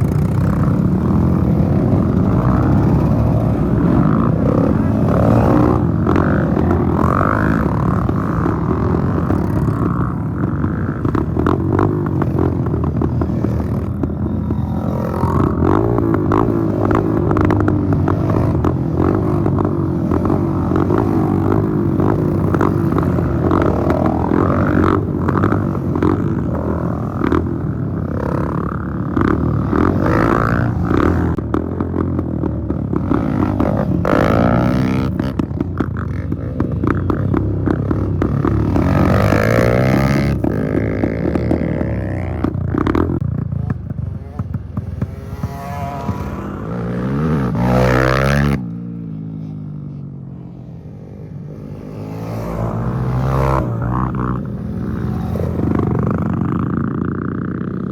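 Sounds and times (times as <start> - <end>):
dirt bike engines revving: 0.0 - 57.9.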